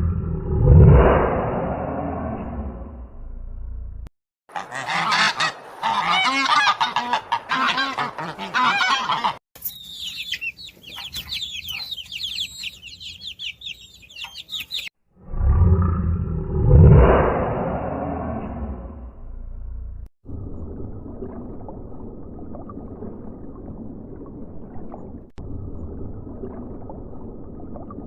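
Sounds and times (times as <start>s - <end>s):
low rumble: 0.0s - 4.1s, 15.2s - 28.0s
waterfowl honking: 4.5s - 9.4s
high chirps with clicks: 9.6s - 14.9s.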